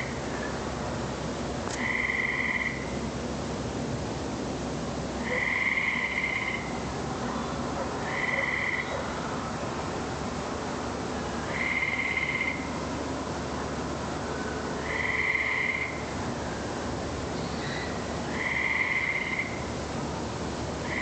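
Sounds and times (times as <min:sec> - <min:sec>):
steady hiss: 0:00.0 - 0:21.0
frog trilling: 0:01.8 - 0:02.8, 0:05.2 - 0:06.7, 0:08.0 - 0:09.0, 0:11.5 - 0:12.7, 0:14.8 - 0:16.0, 0:17.7 - 0:19.6.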